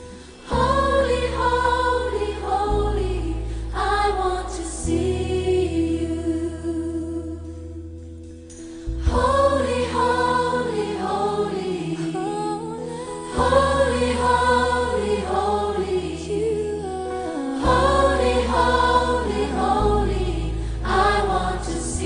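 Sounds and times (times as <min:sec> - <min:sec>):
gospel choir singing: 0:00.1 - 0:06.9, 0:08.9 - 0:22.0
instrumental backing with low bass: 0:12.9 - 0:22.0.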